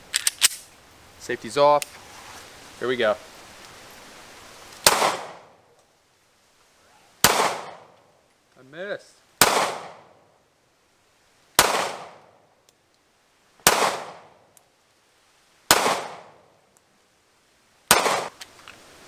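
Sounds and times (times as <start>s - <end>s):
pistol shots: 4.8s - 5.4s, 7.2s - 7.8s, 9.4s - 10.1s, 11.6s - 12.2s, 13.6s - 14.3s, 15.7s - 16.4s, 17.9s - 18.3s.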